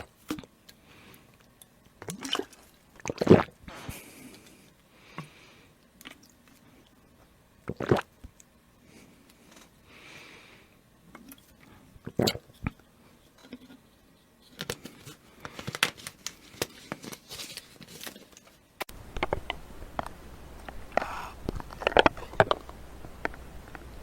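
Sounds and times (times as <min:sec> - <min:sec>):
person drinking: 0:00.0 - 0:07.0, 0:07.7 - 0:08.5, 0:09.2 - 0:12.8, 0:20.9 - 0:22.6
low background hum: 0:00.0 - 0:24.0.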